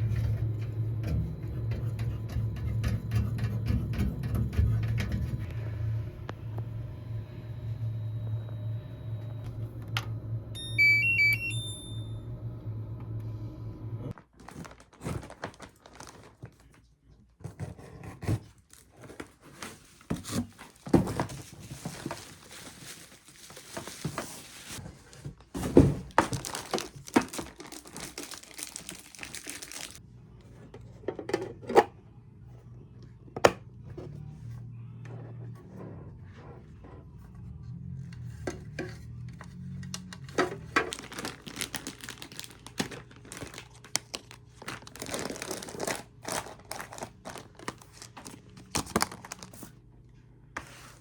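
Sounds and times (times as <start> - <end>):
steady low hum: 0.0 - 14.1
electronic beep melody: 10.6 - 12.2
rustling and crinkling: 14.2 - 30.0, 38.9 - 49.8.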